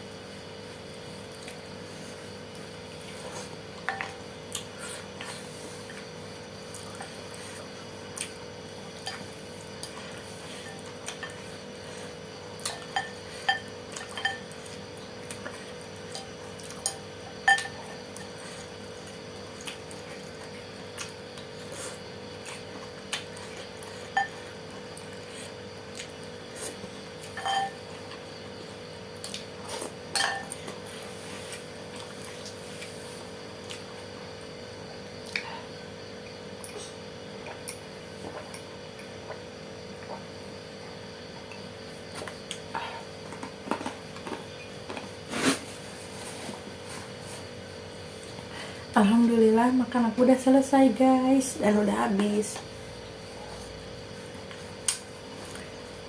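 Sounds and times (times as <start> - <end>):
steady faint hum: 0.0 - 56.0
cutlery tapping against bowl: 27.4 - 27.7.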